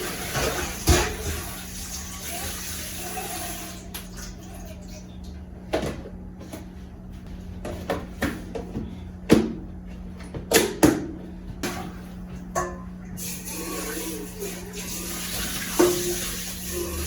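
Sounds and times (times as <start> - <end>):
steady low hum: 3.9 - 17.0.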